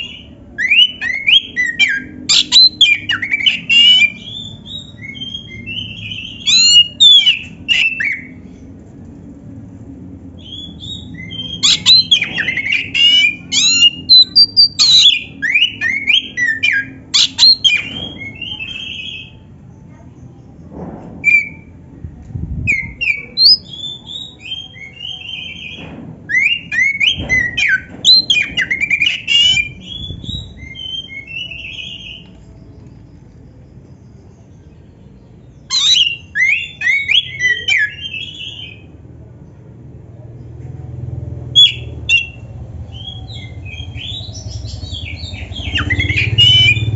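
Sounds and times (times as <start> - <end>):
bird singing whistled phrases: 0.0 - 8.4, 10.4 - 19.4, 21.2 - 21.7, 22.7 - 32.3, 35.6 - 38.9, 41.6 - 46.9.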